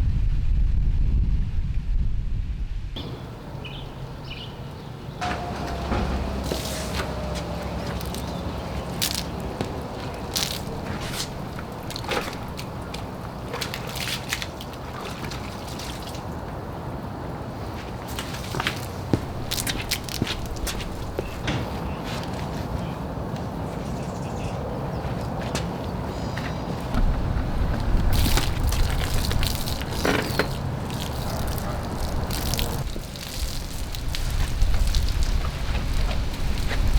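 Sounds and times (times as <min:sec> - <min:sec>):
steady low rumble: 0:00.0 - 0:04.8, 0:26.9 - 0:36.9
water splashing on a car: 0:05.4 - 0:21.4, 0:27.0 - 0:36.9.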